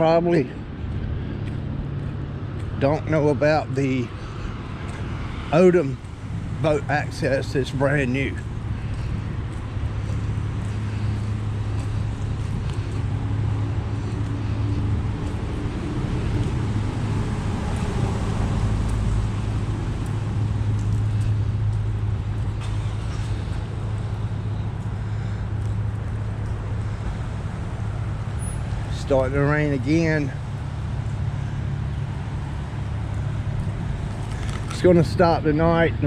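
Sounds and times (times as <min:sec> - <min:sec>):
road or rain noise: 0:00.0 - 0:36.0
vehicle engine humming: 0:00.0 - 0:36.0.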